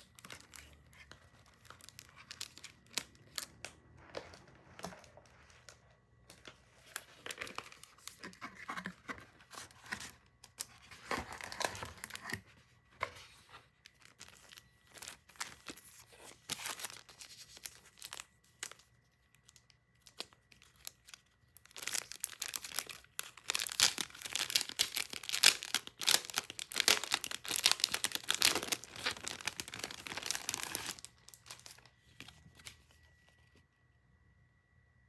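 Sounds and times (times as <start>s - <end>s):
packaging tearing and crinkling: 0.0s - 3.6s, 13.8s - 18.8s, 19.4s - 32.8s.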